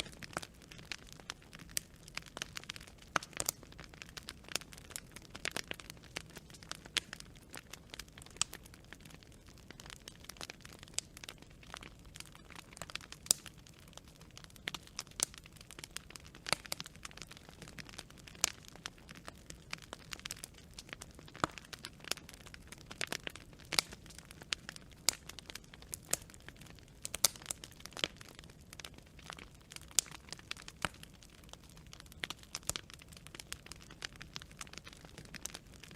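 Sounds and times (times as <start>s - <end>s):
wood fire crackling: 0.0s - 35.9s.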